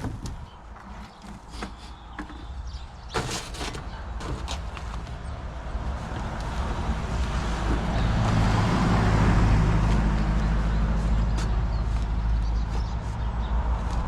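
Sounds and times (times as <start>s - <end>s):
vehicle engine humming: 3.5s - 14.0s.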